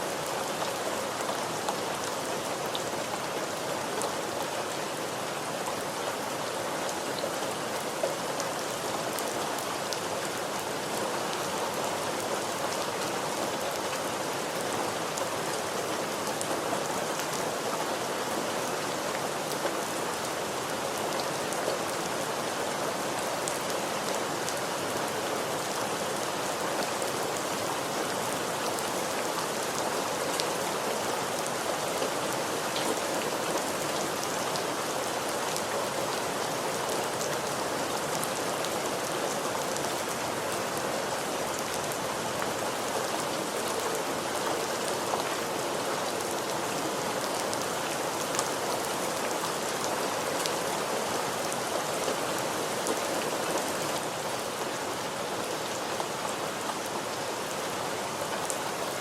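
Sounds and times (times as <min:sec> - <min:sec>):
rain pattering on a surface: 0:00.1 - 0:59.0.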